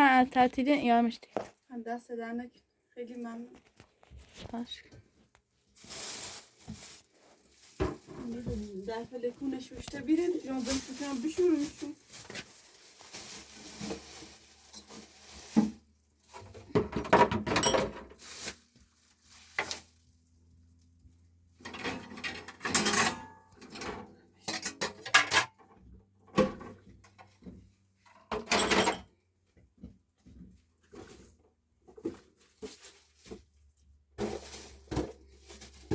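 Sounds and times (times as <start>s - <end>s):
dishes and pots clattering: 16.7s - 18.1s, 21.6s - 25.7s.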